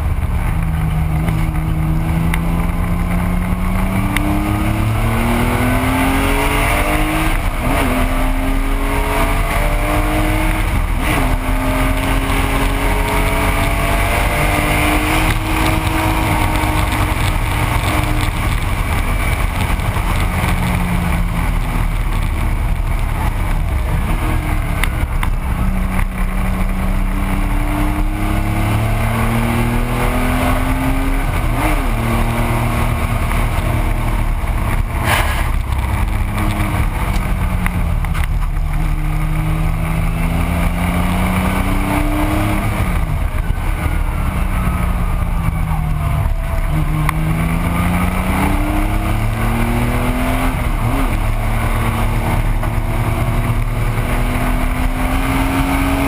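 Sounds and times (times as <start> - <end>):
car engine revving: 0.0 - 56.0
wind and road rumble: 0.0 - 56.0.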